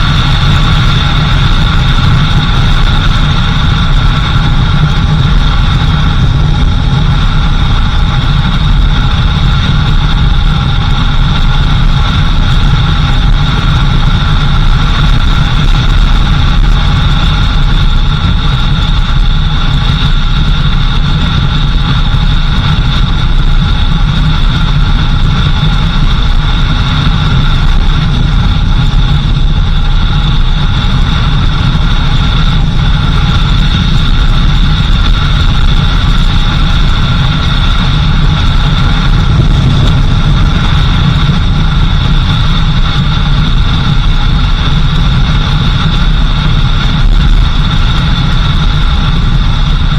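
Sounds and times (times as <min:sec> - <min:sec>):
vehicle engine and road rumble: 0:00.0 - 0:49.9
steady higher tones: 0:36.5 - 0:43.6.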